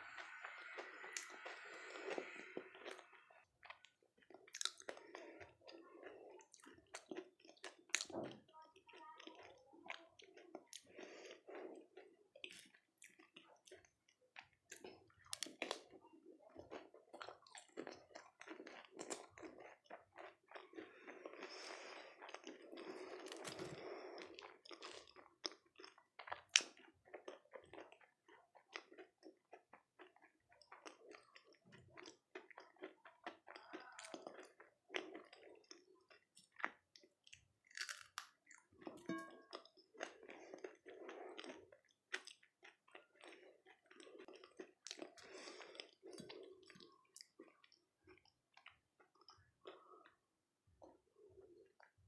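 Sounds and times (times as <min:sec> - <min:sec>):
wet mouth sounds: 0:00.0 - 0:05.5
crunchy chewing: 0:00.0 - 0:08.2, 0:09.2 - 0:50.2.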